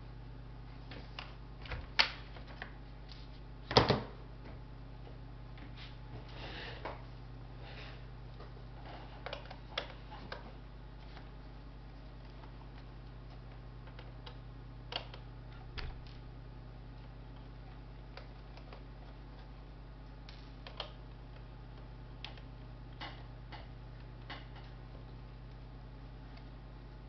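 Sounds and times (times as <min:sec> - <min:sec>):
low electrical hum: 0:00.0 - 0:27.0
small clicks and taps: 0:12.0 - 0:16.2, 0:17.0 - 0:25.7.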